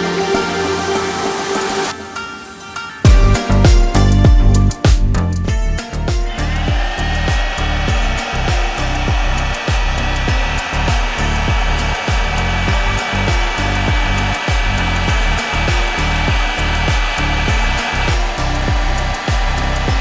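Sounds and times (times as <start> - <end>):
music with pulsing bass beat: 3.1 - 20.0.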